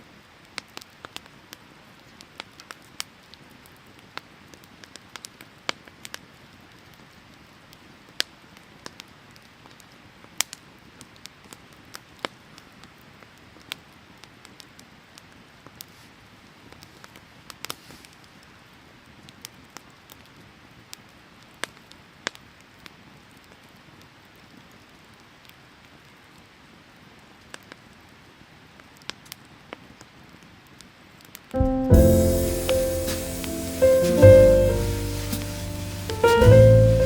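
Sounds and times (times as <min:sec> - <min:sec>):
firewood crackling and popping: 0:32.0 - 0:37.0
stream rushing: 0:32.1 - 0:37.0.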